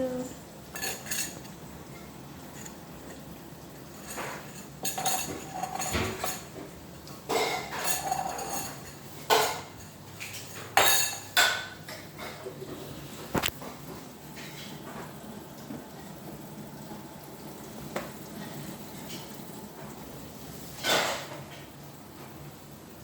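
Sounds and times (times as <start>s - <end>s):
dishes and cutlery clinking: 0.7s - 3.2s, 3.8s - 12.8s, 20.8s - 21.7s.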